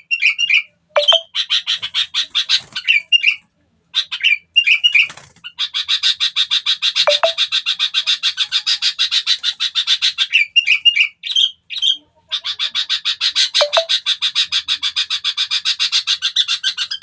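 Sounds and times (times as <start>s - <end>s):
squawky bird notes: 1.0s - 1.2s, 7.1s - 7.4s, 13.6s - 13.9s.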